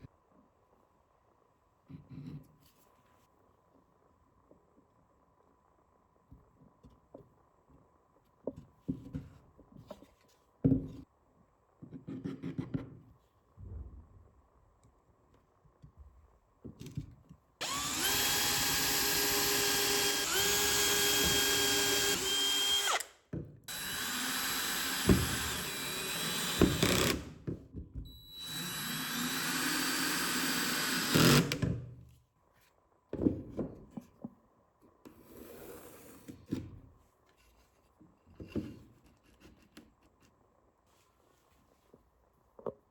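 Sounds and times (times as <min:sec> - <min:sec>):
electric drill running: 0:17.6 - 0:23.1, 0:23.7 - 0:27.3, 0:28.3 - 0:31.6.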